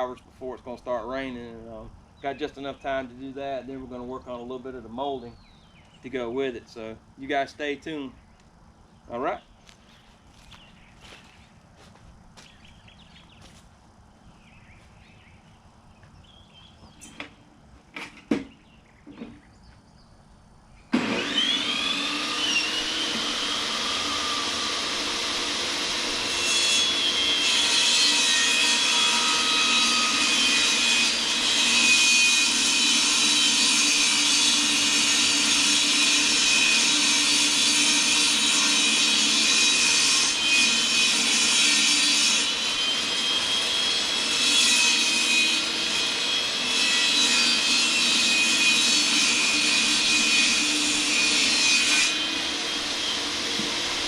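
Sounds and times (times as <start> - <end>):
electric power saw cutting wood: 20.9 - 54.0.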